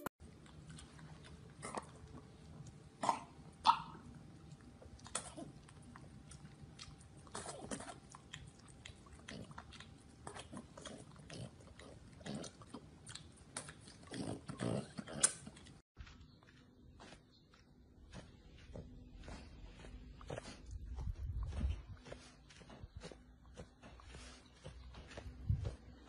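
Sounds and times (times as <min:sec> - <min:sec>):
dog licking and gnawing: 0:00.2 - 0:17.2.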